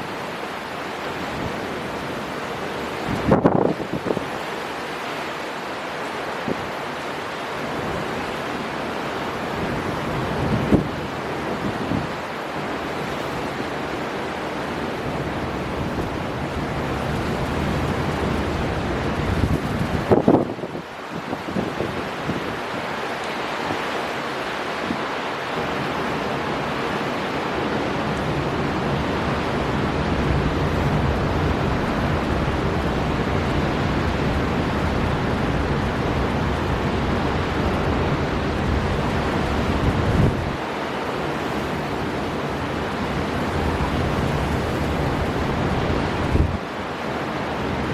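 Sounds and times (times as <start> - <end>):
storm wind over sea: 0.0 - 47.9
surf breaking: 38.5 - 47.9.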